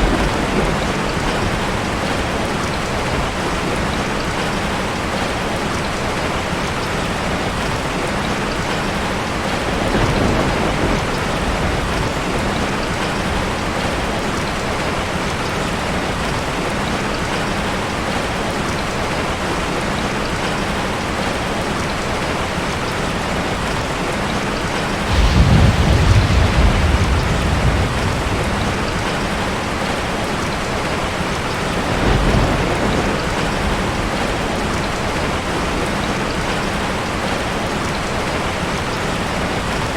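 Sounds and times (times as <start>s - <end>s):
thunder rumbling: 0.0s - 4.5s, 9.7s - 14.1s, 25.0s - 37.3s
heavy rain pouring: 0.0s - 39.9s.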